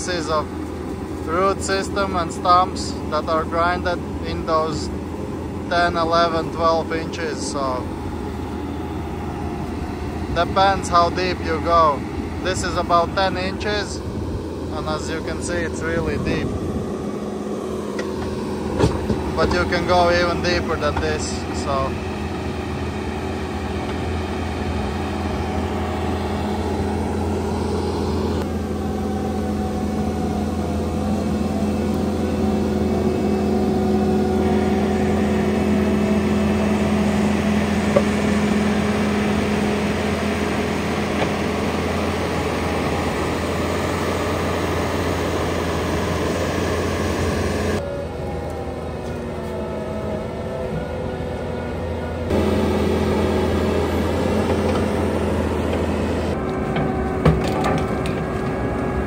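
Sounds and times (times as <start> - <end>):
diesel engine running: 0.0 - 59.0
rotor head grinding stumps: 52.3 - 59.0.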